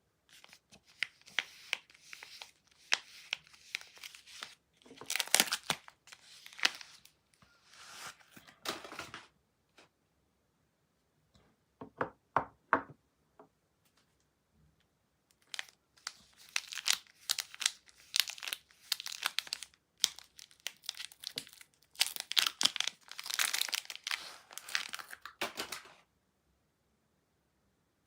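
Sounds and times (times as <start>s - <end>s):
wrapper tearing and crinkling: 0.3s - 7.1s, 15.4s - 25.8s.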